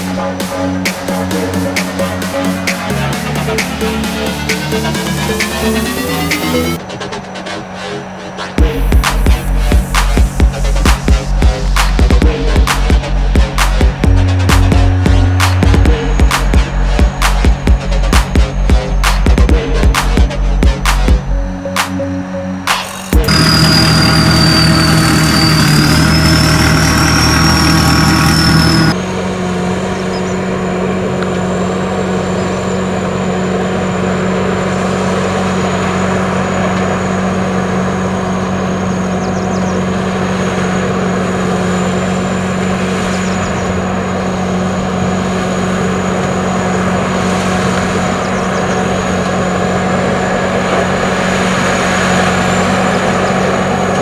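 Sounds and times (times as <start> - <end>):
music: 0.0 - 25.0
harvester engine droning: 0.0 - 54.0
high machine whine: 0.0 - 54.0.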